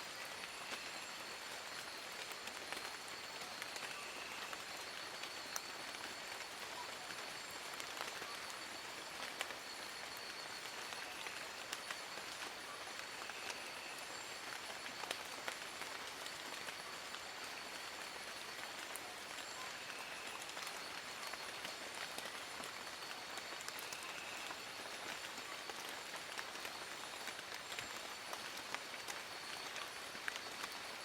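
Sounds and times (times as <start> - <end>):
rain falling on leaves: 0.0 - 31.0
raindrops ticking: 4.5 - 31.0.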